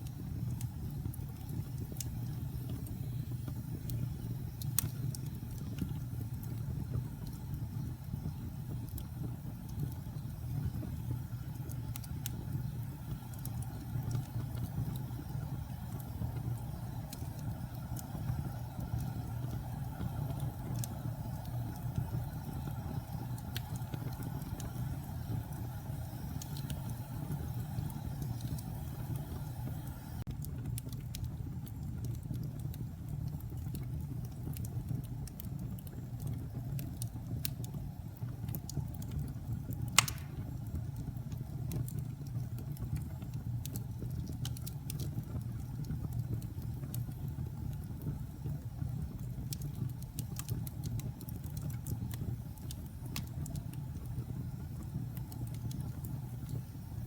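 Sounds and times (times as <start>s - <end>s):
wood fire crackling: 0.0s - 57.0s
loud sharp pop: 40.0s - 40.4s.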